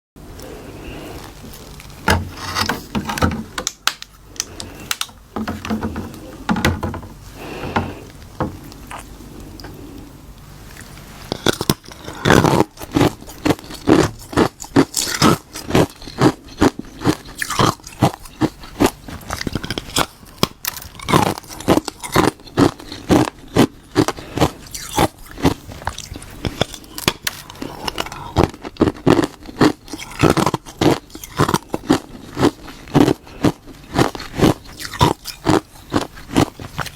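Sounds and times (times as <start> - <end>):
person crunching ice: 11.3 - 36.9.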